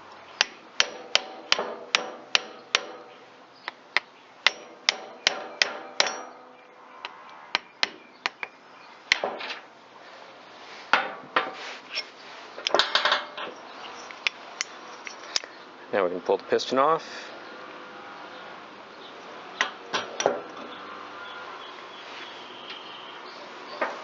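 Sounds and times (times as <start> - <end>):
metal clinks: 14.9 - 15.4.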